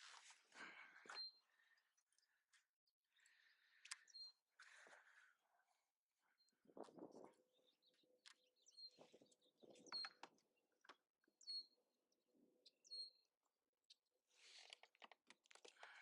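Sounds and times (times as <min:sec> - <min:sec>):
faint bird chirps: 0:00.6 - 0:14.0
small clicks: 0:03.7 - 0:04.3, 0:13.9 - 0:16.0.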